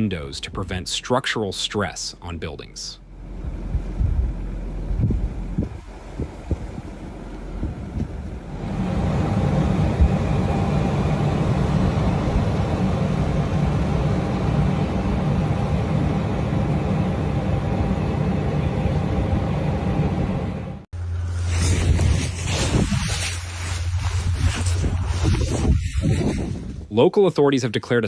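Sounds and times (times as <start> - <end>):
vehicle engine humming: 2.1 - 25.6.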